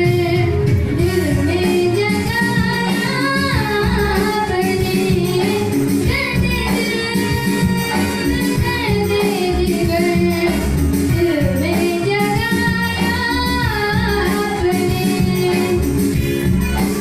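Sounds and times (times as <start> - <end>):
high singing voice: 0.0 - 16.0
musical backing with steady beat: 0.0 - 17.0.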